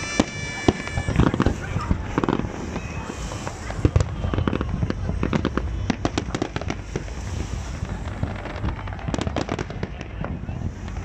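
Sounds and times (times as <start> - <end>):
fireworks bangs and crackles: 0.0 - 11.0
steady low rumble: 0.0 - 11.0.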